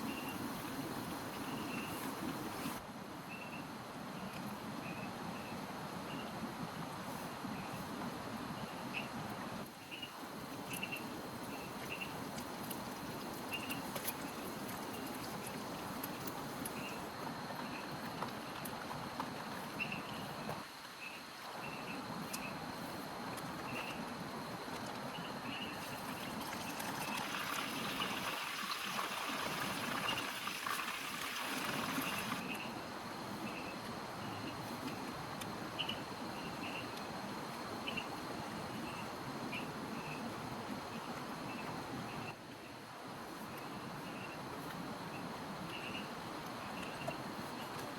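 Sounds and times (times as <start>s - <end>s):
steady rain: 26.2s - 32.5s.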